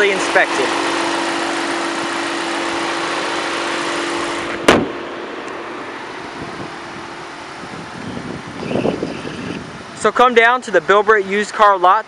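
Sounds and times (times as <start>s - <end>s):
car engine idling: 0.0s - 10.2s
car hood slamming shut: 4.5s - 5.1s.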